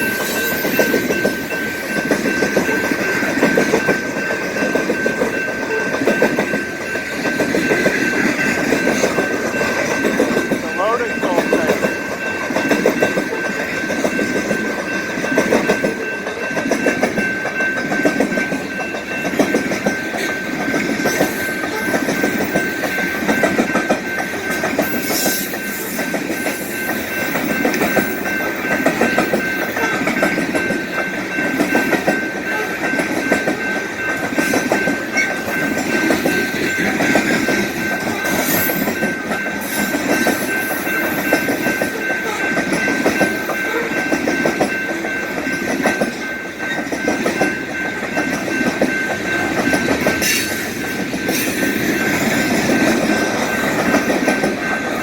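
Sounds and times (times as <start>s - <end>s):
train wheels clattering on rails: 0.0s - 55.0s
high-pitched tone: 10.6s - 12.2s.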